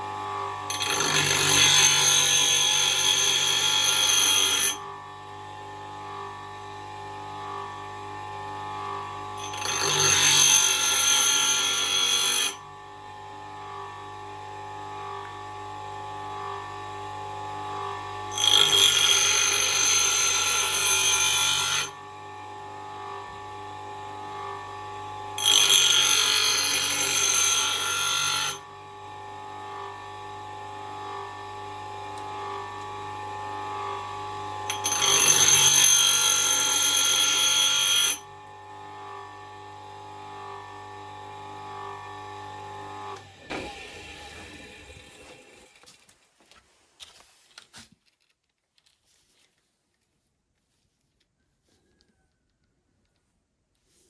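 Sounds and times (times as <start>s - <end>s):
grinder motor hum: 0.0s - 46.0s
high-pitched metal grinding: 0.7s - 4.9s, 9.4s - 12.6s, 18.3s - 22.0s, 25.4s - 28.6s, 34.5s - 38.3s.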